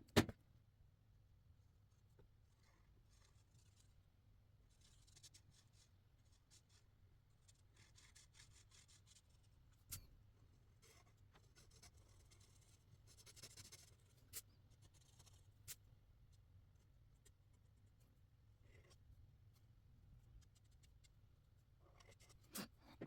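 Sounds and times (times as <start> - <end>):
marker scratching on paper: 4.7 - 6.8, 7.5 - 9.4, 10.8 - 15.8, 20.4 - 21.1, 21.8 - 23.0.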